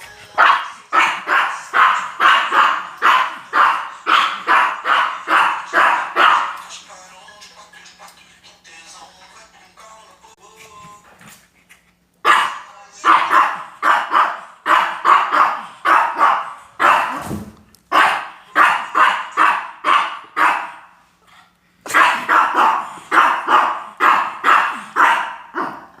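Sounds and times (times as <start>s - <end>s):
dog barking: 0.4s - 6.6s, 12.2s - 17.2s, 17.9s - 21.0s, 21.9s - 26.0s.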